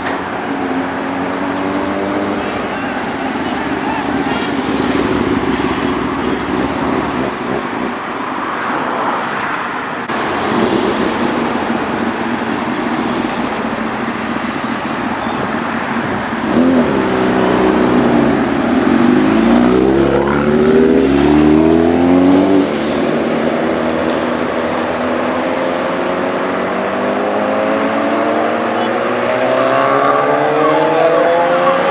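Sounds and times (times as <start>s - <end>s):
traffic noise: 0.0s - 31.9s
motorbike accelerating past: 16.0s - 31.9s.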